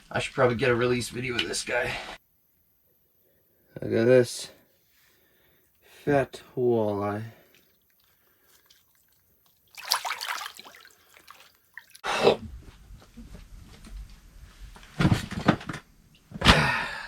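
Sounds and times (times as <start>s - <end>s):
fish splashing in water: 7.5s - 12.1s.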